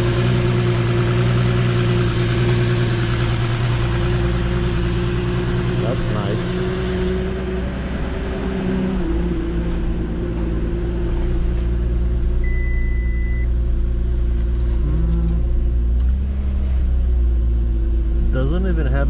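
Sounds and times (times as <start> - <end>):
car engine idling: 0.0 - 19.0
high electronic beep: 12.4 - 13.5.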